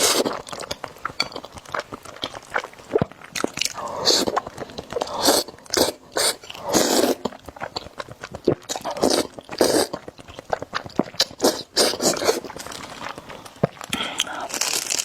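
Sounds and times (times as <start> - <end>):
slurping noodles: 0.0 - 0.5, 3.7 - 13.3
chewing: 0.0 - 15.0.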